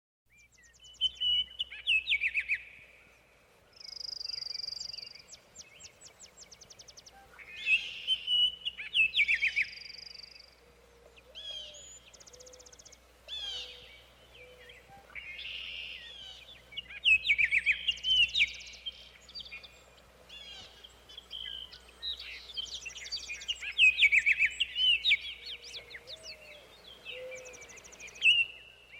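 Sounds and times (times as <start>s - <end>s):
songbirds singing: 0.3s - 28.9s.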